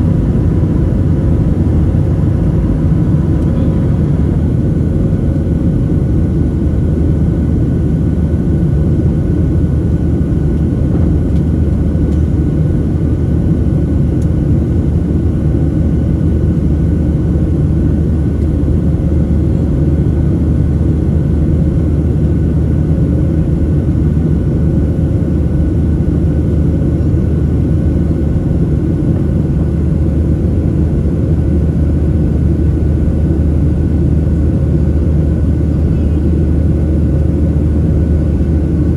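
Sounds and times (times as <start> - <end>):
airliner engine and airflow rumble: 0.0 - 38.9
faint steady hums: 24.5 - 38.9.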